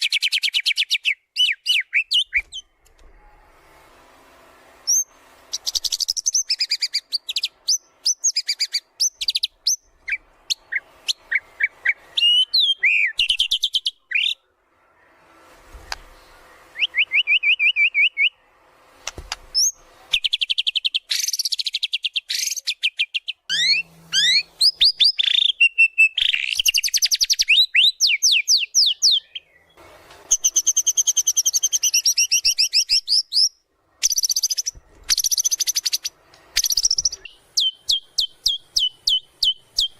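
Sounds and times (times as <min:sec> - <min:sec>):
bird singing rapid trills: 0:04.9 - 0:14.4, 0:30.4 - 0:39.9.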